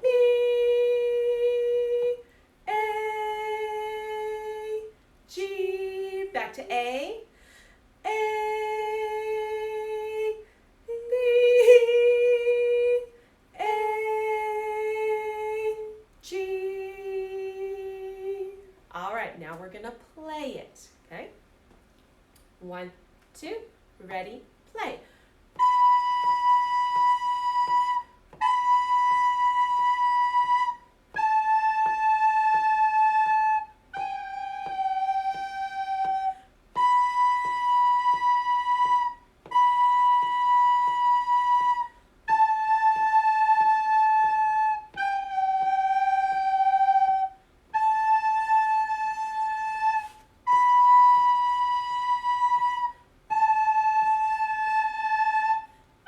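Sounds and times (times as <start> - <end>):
recorder slow melody: 25.6 - 55.7.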